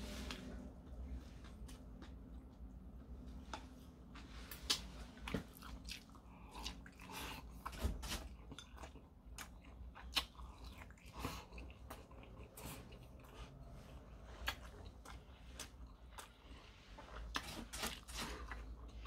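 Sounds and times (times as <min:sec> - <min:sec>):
person chewing food: 0:04.5 - 0:19.0.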